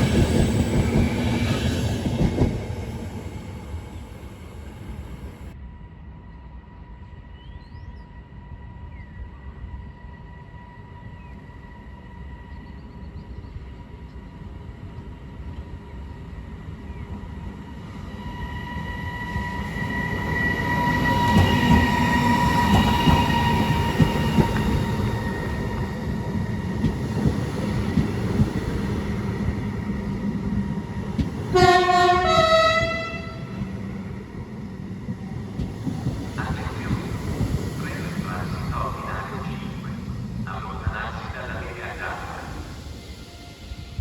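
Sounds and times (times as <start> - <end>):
train rumbling: 0.0 - 44.0
train two-tone horn: 31.5 - 33.8.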